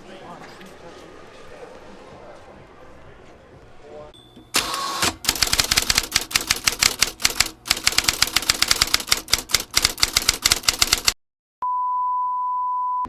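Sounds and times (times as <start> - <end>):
rapid even clicking: 5.1 - 11.2
steady beep tone: 11.6 - 13.0.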